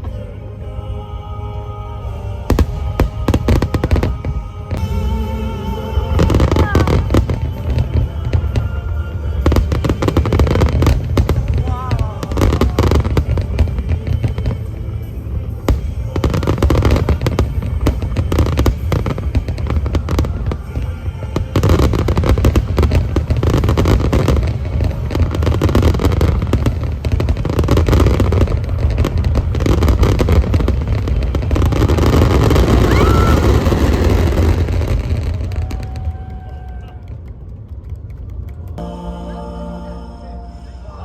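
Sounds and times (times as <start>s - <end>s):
fireworks booming and crackling: 2.4s - 38.9s.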